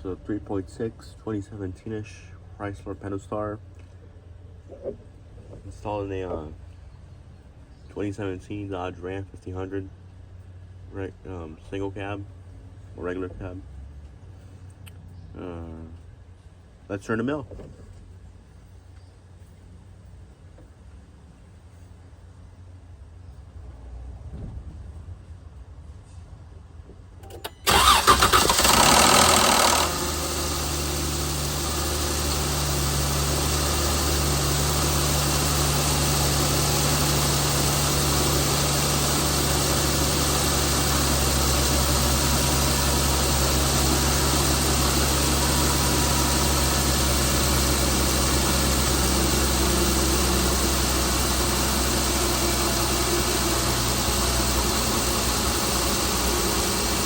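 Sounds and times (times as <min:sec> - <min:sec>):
engine cranking: 0:27.2 - 0:57.0
engine idling: 0:27.2 - 0:57.0.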